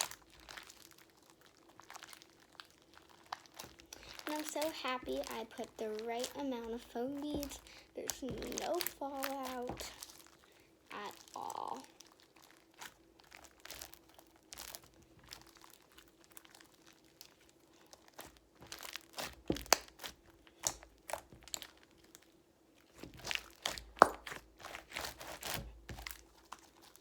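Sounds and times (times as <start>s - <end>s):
slime squishing with crackles: 0.0s - 27.0s.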